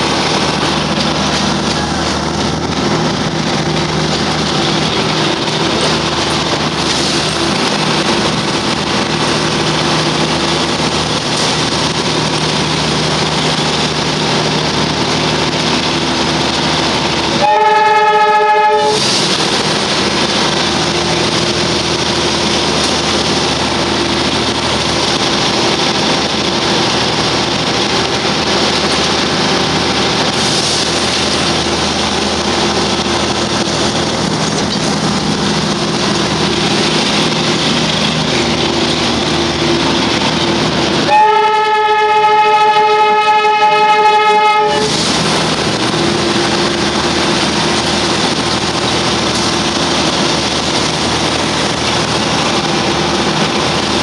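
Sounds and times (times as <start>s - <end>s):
train wheels rattling and rumbling: 0.0s - 54.0s
train horn blast: 17.4s - 19.1s, 41.0s - 45.1s.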